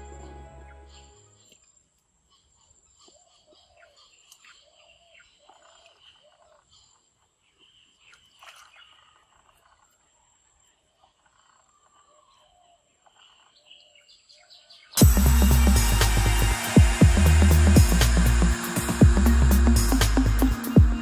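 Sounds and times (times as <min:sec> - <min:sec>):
high-pitched insect drone: 0:15.0 - 0:21.0.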